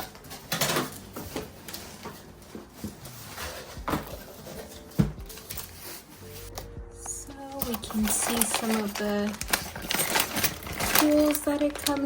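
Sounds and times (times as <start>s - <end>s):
cardboard packaging rustling: 0.0s - 12.0s
box thump: 3.7s - 5.4s.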